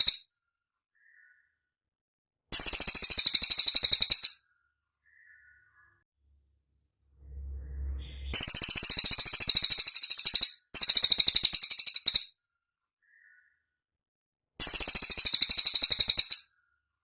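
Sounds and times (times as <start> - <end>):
brief low rumble: 7.0 - 9.3.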